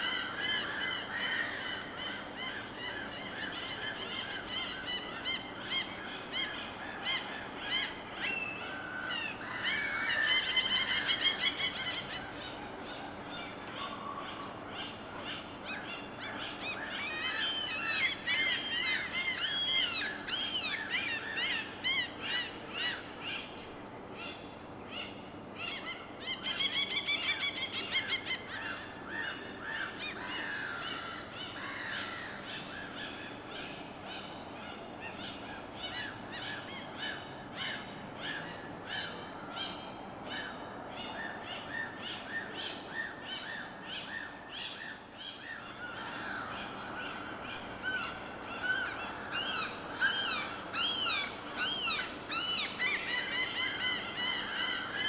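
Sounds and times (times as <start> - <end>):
birds calling: 24.3 - 55.0.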